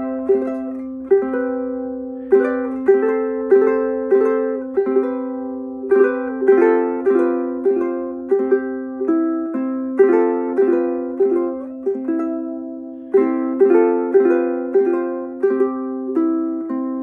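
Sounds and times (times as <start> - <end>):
ukulele played fingerstyle: 0.0 - 17.0.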